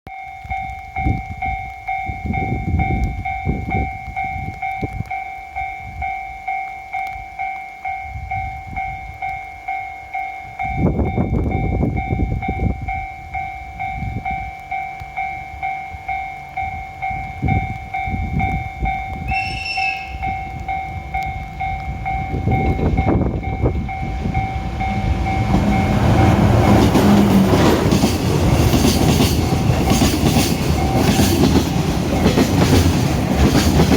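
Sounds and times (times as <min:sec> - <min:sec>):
two-tone warning tone: 0:00.1 - 0:27.6
low pulsing rumble of train: 0:00.4 - 0:33.9
short high horn note: 0:19.3 - 0:20.3.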